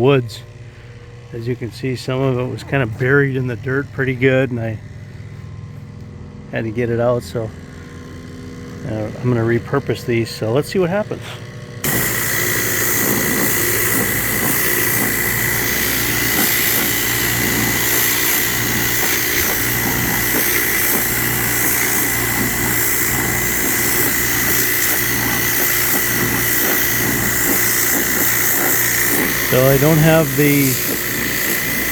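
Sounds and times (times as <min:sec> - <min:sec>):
machine drone: 0:07.5 - 0:31.9
high whine: 0:11.0 - 0:31.9
pressure washer jet hissing: 0:11.2 - 0:31.9.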